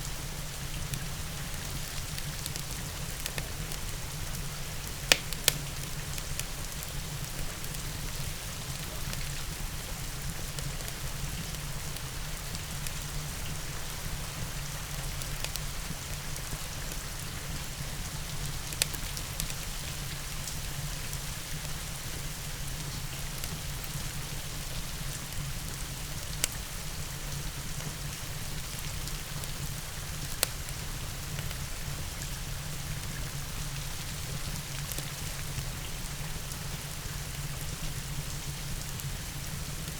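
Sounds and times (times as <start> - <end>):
steady rain: 0.0 - 39.9
fireplace crackling and popping: 0.7 - 9.6, 15.2 - 16.5, 17.6 - 19.9, 26.1 - 26.7, 27.8 - 31.6, 34.5 - 35.4.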